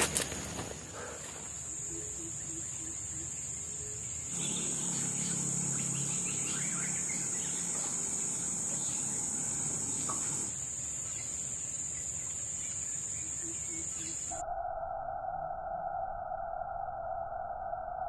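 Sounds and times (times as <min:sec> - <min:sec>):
high-pitched insect drone: 0:00.1 - 0:18.0
low hum: 0:01.9 - 0:10.6.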